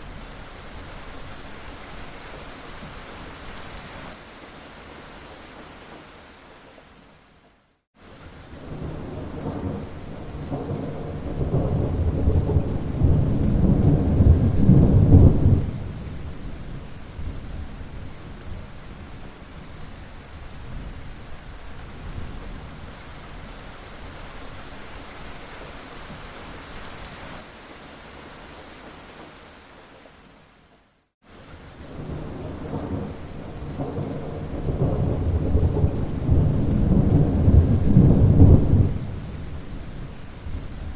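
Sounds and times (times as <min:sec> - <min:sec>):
steady rain falling: 0:00.0 - 0:40.9
rumble of thunder: 0:08.6 - 0:18.7, 0:31.8 - 0:40.9.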